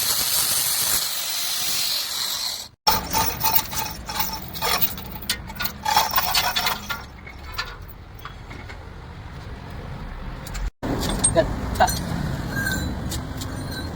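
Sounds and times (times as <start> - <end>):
metal tools clinking: 2.9 - 8.9, 10.6 - 13.9.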